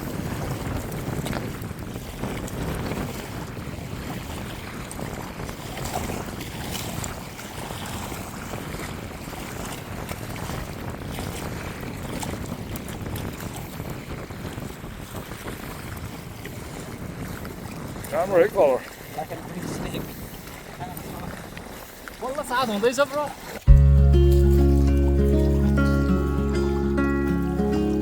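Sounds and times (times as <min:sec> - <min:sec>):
wind buffeting microphone: 0:00.0 - 0:22.2.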